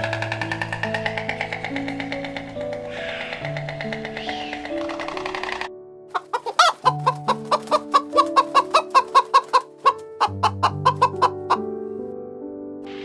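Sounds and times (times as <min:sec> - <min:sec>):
background music with held notes: 0:00.0 - 0:13.0
chicken clucking: 0:06.2 - 0:11.7.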